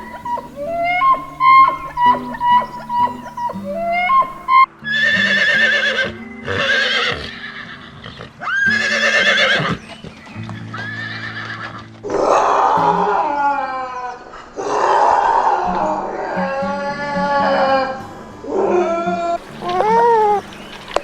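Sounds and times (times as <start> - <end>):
background music: 0.0 - 7.9
horse whinnying: 0.0 - 10.0, 10.7 - 18.0.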